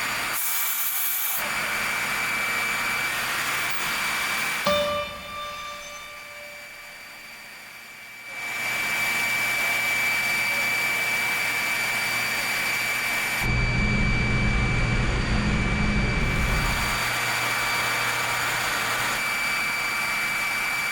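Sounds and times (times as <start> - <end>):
industrial machinery high whine: 1.4 - 20.9.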